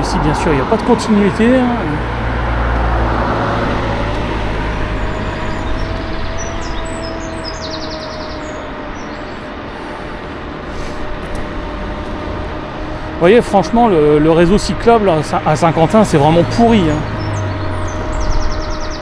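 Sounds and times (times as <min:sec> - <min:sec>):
scooter motor whine: 0:00.0 - 0:19.0
wind and road noise: 0:00.0 - 0:19.0
bird chirping: 0:03.6 - 0:09.6, 0:14.5 - 0:19.0.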